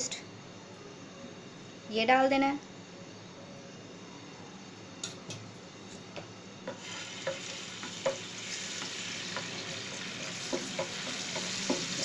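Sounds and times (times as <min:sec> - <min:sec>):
paste sizzling in hot oil: 0:06.7 - 0:12.0.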